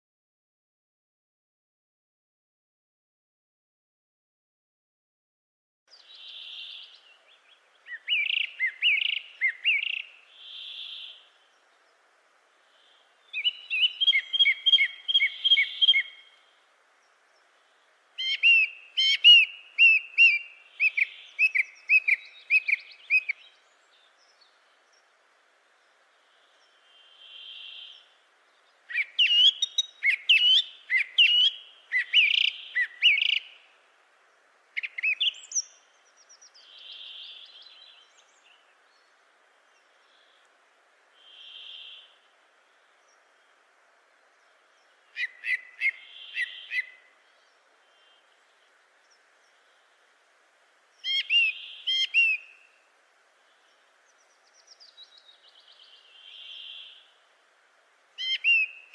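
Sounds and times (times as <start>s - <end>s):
soft breathy bird notes: 5.9s - 50.2s, 50.8s - 57.4s
bird singing chirps and whistles: 7.9s - 11.2s, 13.3s - 16.3s, 18.2s - 23.6s, 28.9s - 33.5s, 34.8s - 38.6s, 45.2s - 47.0s, 51.0s - 52.7s, 58.2s - 58.9s.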